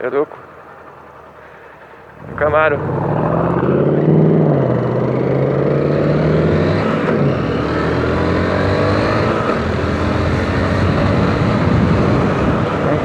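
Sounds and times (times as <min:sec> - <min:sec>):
car engine noise: 0:00.0 - 0:13.0
wind on helmet microphone: 0:10.6 - 0:13.0.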